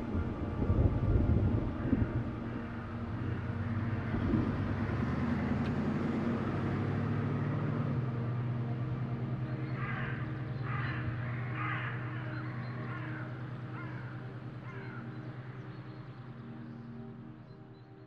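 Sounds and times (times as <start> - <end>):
car engine drone: 0.0 - 18.0
birds calling roughly: 9.4 - 18.0.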